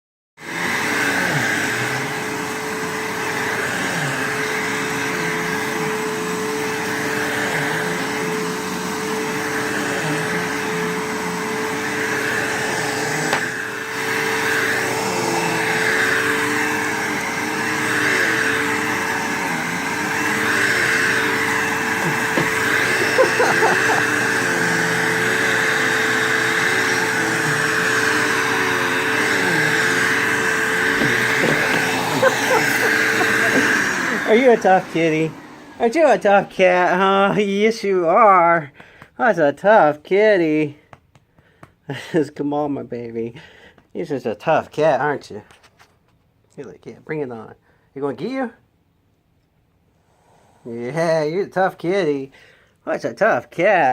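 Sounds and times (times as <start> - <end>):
vacuum cleaner running: 0.4 - 40.6.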